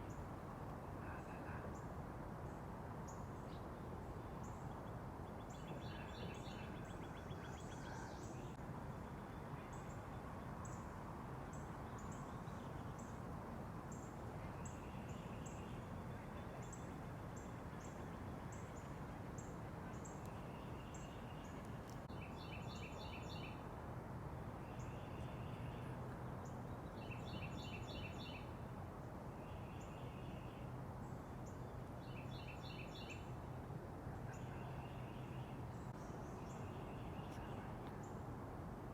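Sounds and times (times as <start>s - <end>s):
small songbirds calling: 3.1s - 13.2s, 13.9s - 23.6s, 24.6s - 28.5s, 31.4s - 33.4s.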